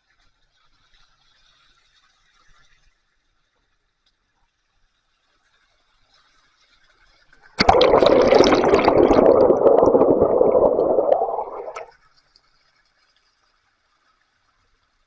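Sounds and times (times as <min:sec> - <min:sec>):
water gushing and gurgling: 0:07.6 - 0:11.9.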